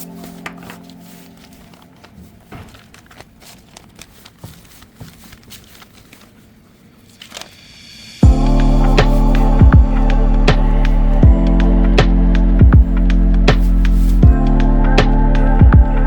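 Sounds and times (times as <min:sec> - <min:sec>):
faint handling clicks and rustling: 0:00.0 - 0:07.7
loud music: 0:08.0 - 0:16.0.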